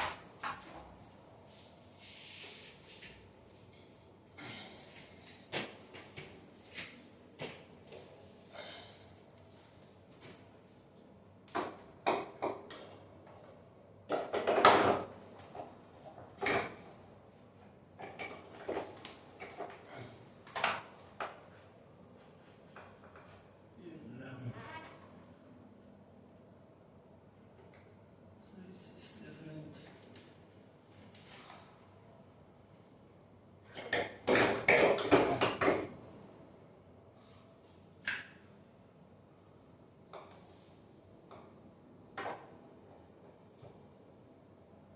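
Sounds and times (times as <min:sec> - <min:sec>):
hard objects knocking: 0:33.8 - 0:35.9.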